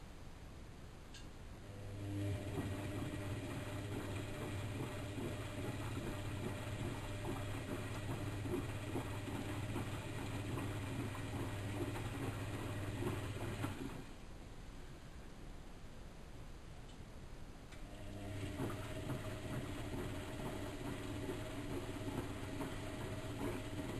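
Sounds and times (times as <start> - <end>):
washing machine motor hum: 1.6 - 14.2, 17.8 - 23.9
laundry and water sloshing: 2.3 - 14.2, 18.2 - 23.9.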